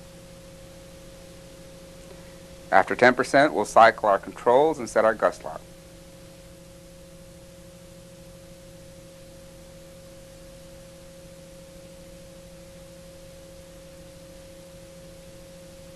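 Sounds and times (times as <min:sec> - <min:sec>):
steady tonal hum: 0:00.0 - 0:15.9.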